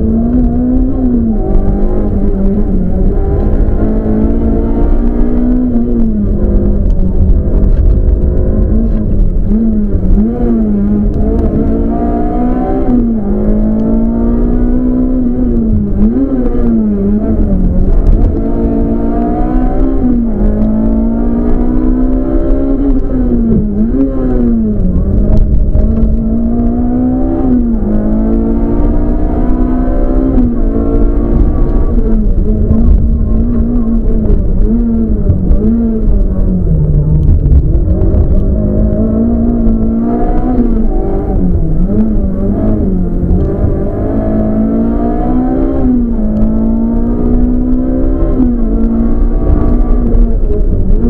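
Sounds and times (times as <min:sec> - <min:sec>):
car engine revving through gears: 0:00.0 - 0:51.0
road and drivetrain rumble: 0:00.0 - 0:51.0.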